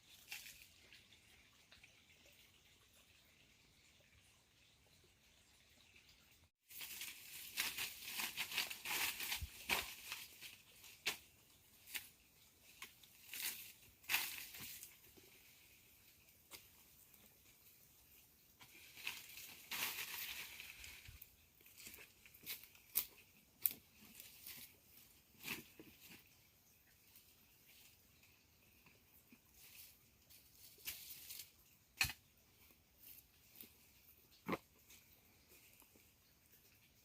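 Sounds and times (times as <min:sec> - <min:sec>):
dry material rustling and crackling: 0:06.6 - 0:17.8, 0:18.6 - 0:36.0.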